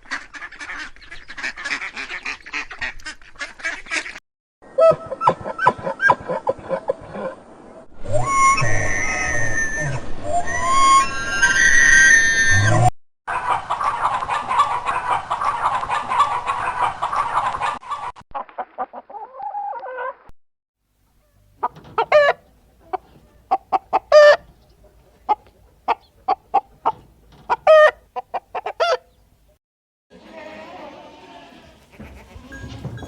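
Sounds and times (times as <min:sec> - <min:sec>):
chickens squawking: 0:00.0 - 0:07.3, 0:13.3 - 0:20.2, 0:21.1 - 0:29.5, 0:30.2 - 0:33.0
chickens clucking: 0:13.3 - 0:20.1, 0:21.1 - 0:29.6, 0:30.2 - 0:33.0.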